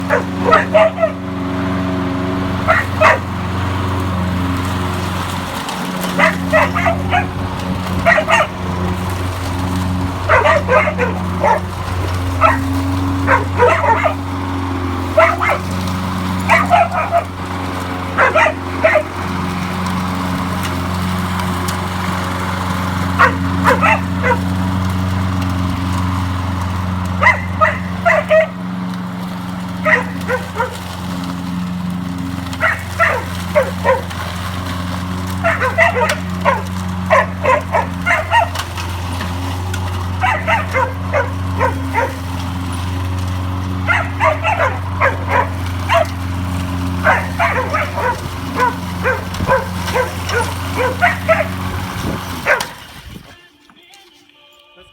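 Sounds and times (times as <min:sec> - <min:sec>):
lawnmower engine humming: 0:00.0 - 0:54.9
dog barking: 0:00.1 - 0:01.2, 0:02.6 - 0:03.3, 0:06.1 - 0:07.4, 0:08.0 - 0:08.9, 0:10.2 - 0:14.3, 0:15.1 - 0:15.8, 0:16.4 - 0:19.2, 0:23.2 - 0:24.5, 0:27.2 - 0:28.6, 0:29.8 - 0:30.9, 0:32.6 - 0:34.2, 0:35.4 - 0:38.7, 0:40.1 - 0:42.4, 0:43.8 - 0:46.2, 0:46.9 - 0:51.6, 0:52.4 - 0:52.8.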